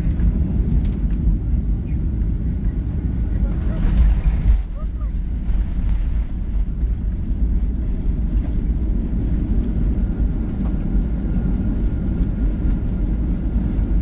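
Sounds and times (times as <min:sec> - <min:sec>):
airliner low rumble: 0:00.0 - 0:14.0.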